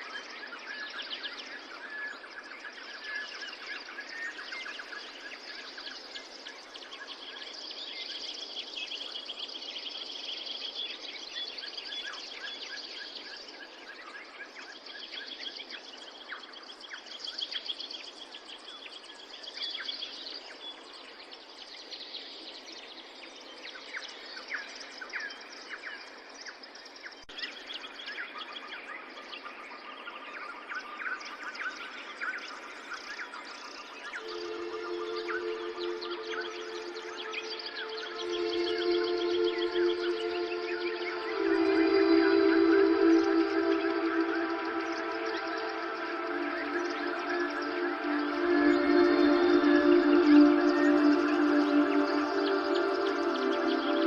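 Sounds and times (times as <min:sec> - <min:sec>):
steady background hiss: 0:28.8 - 0:54.0.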